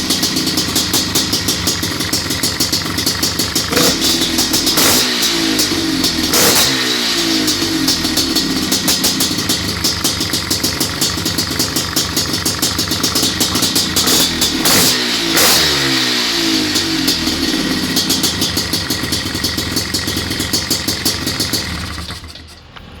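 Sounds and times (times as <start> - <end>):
two-stroke engine revving: 0.0 - 22.5.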